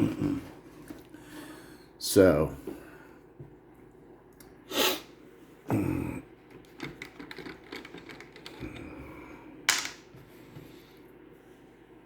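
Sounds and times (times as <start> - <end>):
tools clicking and tapping: 6.8 - 8.6.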